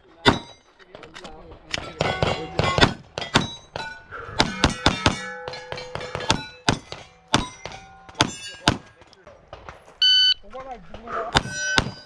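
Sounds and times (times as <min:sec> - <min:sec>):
steel plate ringing: 0:01.8 - 0:08.8, 0:11.4 - 0:12.0.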